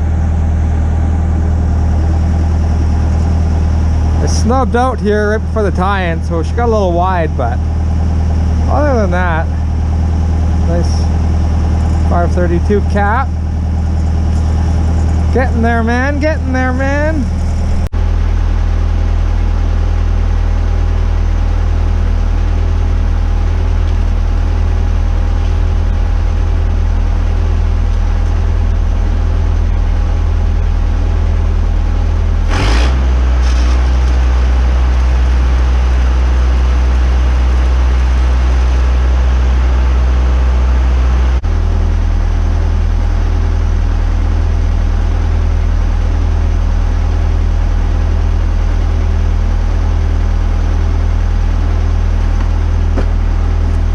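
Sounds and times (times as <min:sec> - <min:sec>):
low machine hum: 0:00.0 - 0:53.9
sudden crackle: 0:32.4 - 0:38.8.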